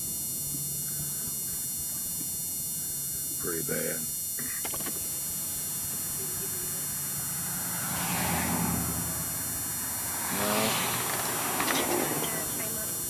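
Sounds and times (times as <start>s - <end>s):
car engine hum: 0.0s - 13.0s
road noise: 4.6s - 13.0s.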